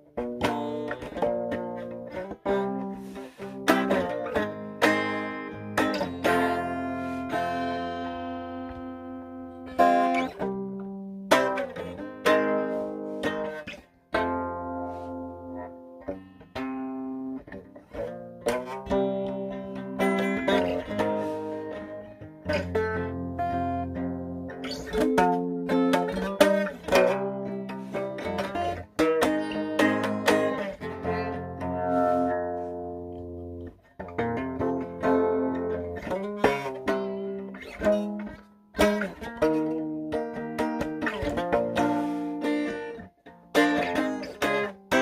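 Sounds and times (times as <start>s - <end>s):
blues guitar playing: 0.0s - 45.0s.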